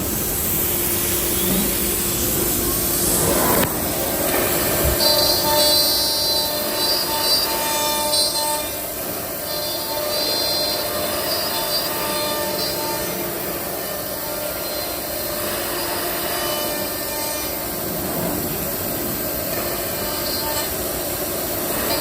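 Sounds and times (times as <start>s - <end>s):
router spindle cutting wood: 3.6s - 17.8s.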